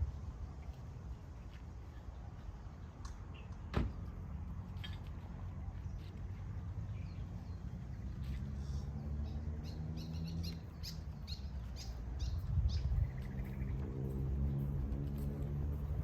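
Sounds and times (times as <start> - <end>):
steady low rumble: 12.2 - 16.0.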